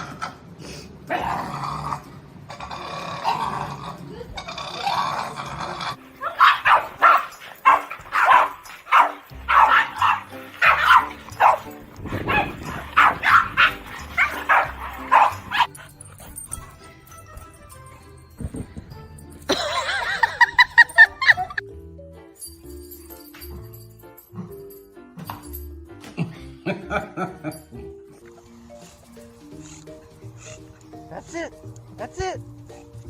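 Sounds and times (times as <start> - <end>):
background music: 0.0 - 33.0
dog barking rapidly: 6.2 - 15.7.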